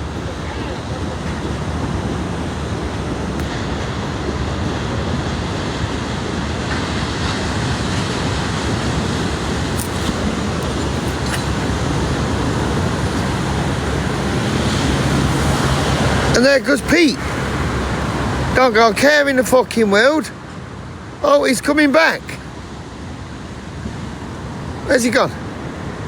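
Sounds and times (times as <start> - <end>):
sea surf: 0.0 - 26.0
wind: 0.0 - 26.0.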